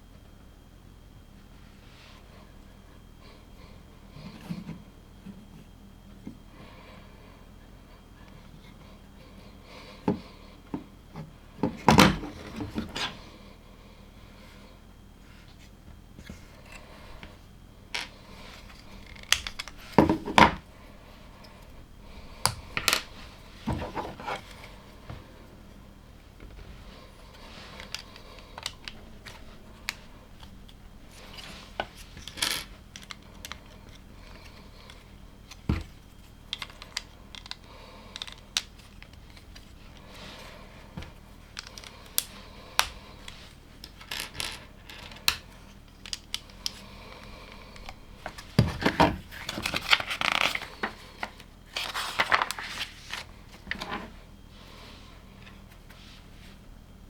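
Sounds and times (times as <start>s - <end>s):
plastic bricks snapping together: 19.1s - 20.6s.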